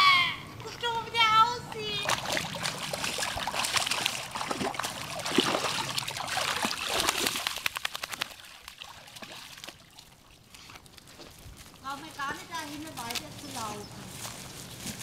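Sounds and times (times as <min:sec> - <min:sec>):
dog splashing in muddy puddle: 0:01.8 - 0:13.3.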